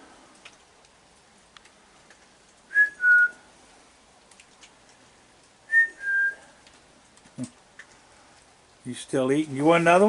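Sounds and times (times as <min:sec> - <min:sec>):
person whistling two-note call: 0:02.7 - 0:03.4, 0:05.7 - 0:06.4.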